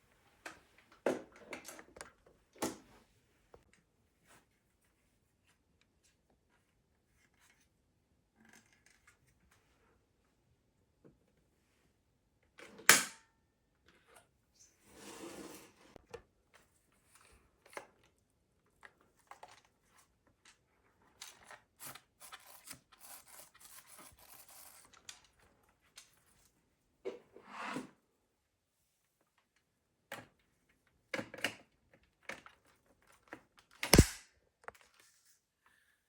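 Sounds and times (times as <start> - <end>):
sharp click: 33.8 - 34.2.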